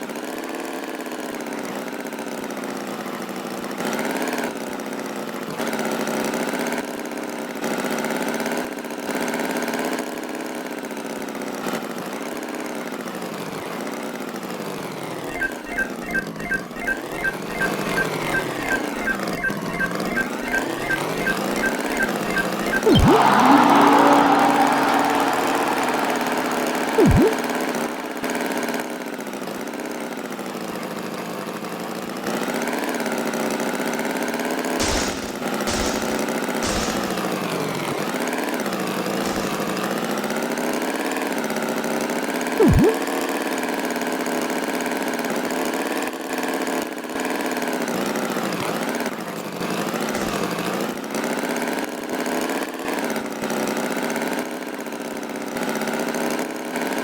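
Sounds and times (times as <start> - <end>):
sharp clicks: 15.3 - 23.4, 26.4 - 27.5, 34.8 - 37.7
short sharp blip: 25.9 - 27.9, 34.8 - 37.5, 42.6 - 43.0
tractor engine running: 34.8 - 38.2.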